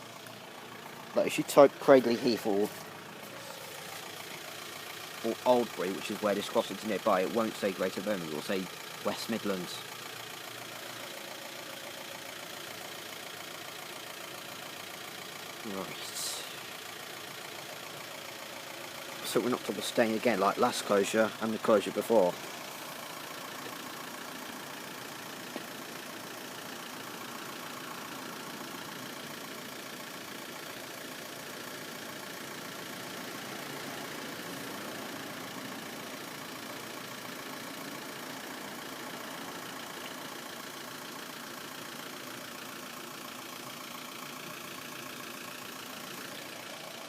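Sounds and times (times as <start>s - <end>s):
vehicle engine idling: 0.0s - 47.0s.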